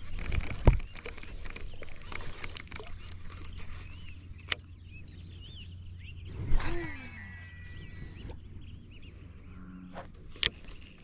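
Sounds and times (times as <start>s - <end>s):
small birds chirping: 0.0s - 11.0s
low wind rumble: 3.0s - 11.0s.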